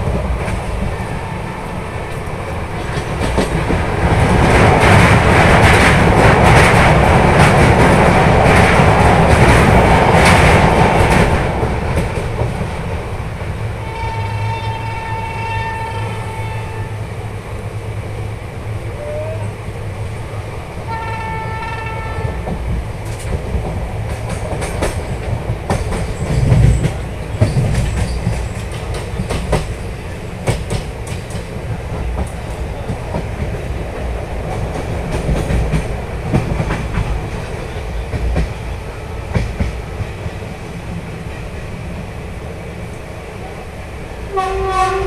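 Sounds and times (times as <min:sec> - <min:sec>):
train rumbling at speed: 0:00.0 - 0:45.0
train horn: 0:13.8 - 0:17.2, 0:20.8 - 0:22.6, 0:44.3 - 0:45.0
wheels clattering over rail joints: 0:22.5 - 0:38.6.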